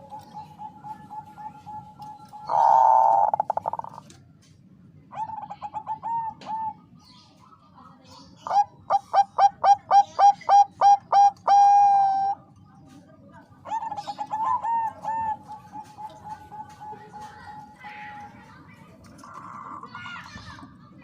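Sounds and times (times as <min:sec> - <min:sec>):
dove cooing: 0:00.0 - 0:04.2, 0:05.1 - 0:07.0, 0:08.4 - 0:12.5, 0:13.6 - 0:18.4
dove rolling trill: 0:00.0 - 0:04.2, 0:05.1 - 0:07.0, 0:08.4 - 0:12.5, 0:13.6 - 0:18.6.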